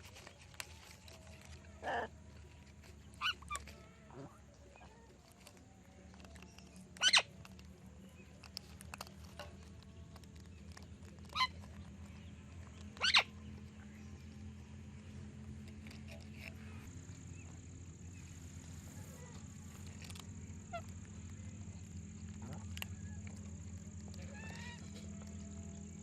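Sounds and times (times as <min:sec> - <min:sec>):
steady low hum: 0:00.0 - 0:26.0
parrots screeching: 0:01.8 - 0:02.1, 0:03.2 - 0:04.3, 0:07.0 - 0:07.3, 0:11.2 - 0:11.6, 0:13.0 - 0:13.3, 0:24.2 - 0:25.1.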